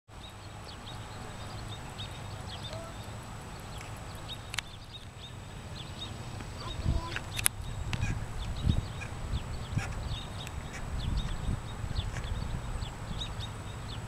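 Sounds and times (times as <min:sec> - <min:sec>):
small birds chirping: 0:00.1 - 0:14.0
steady low rumble: 0:00.1 - 0:14.0
sharp click: 0:07.1 - 0:08.0.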